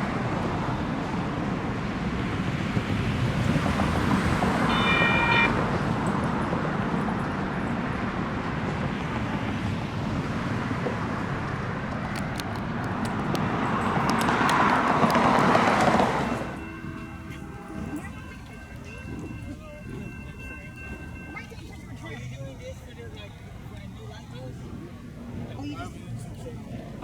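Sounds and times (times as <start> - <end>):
light rail train rumbling: 0.0 - 27.0
traffic noise: 0.0 - 27.0
train horn toot: 4.6 - 5.7, 15.3 - 18.9.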